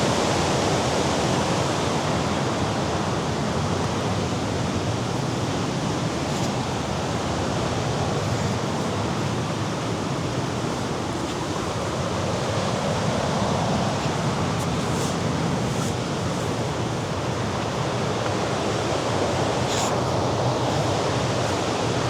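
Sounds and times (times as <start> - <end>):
wind: 0.0 - 22.0
surf washing against rocks: 2.0 - 22.0.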